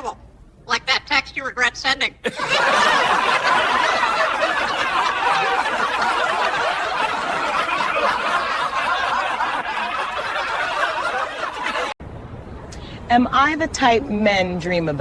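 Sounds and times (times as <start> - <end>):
people laughing: 2.2 - 12.0.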